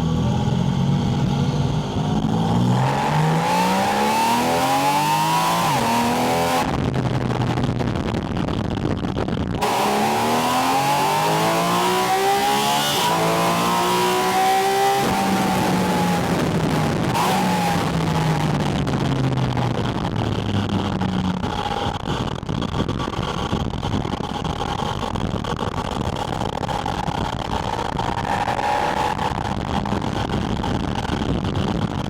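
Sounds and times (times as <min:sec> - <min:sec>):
car engine revving: 0:00.0 - 0:07.0, 0:09.6 - 0:19.1, 0:26.3 - 0:31.9
wind noise: 0:00.0 - 0:32.0.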